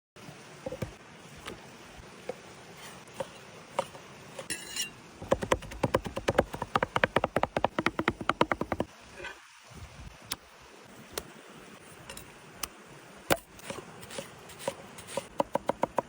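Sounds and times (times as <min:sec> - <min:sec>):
knife chopping on wooden board: 0:05.2 - 0:08.9, 0:14.6 - 0:16.0.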